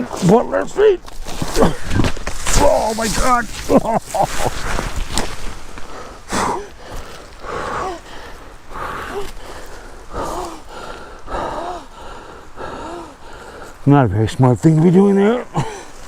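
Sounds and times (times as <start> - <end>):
man panting heavily: 5.8 - 13.8.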